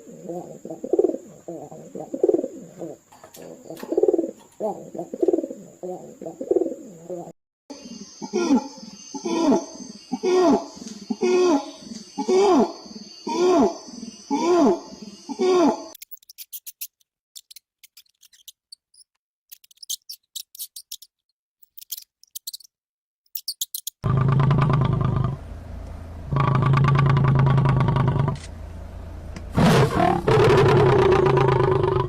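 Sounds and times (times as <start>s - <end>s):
long low animal calls: 8.1s - 16.0s, 29.6s - 32.0s
high-pitched animal chirps: 12.2s - 22.7s, 23.3s - 24.0s.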